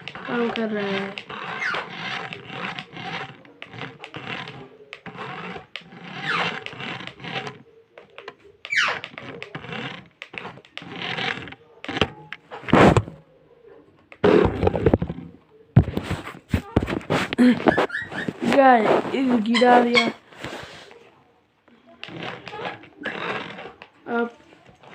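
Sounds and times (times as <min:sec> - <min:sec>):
toy car motor whirring: 0:00.0 - 0:12.7, 0:21.8 - 0:24.9.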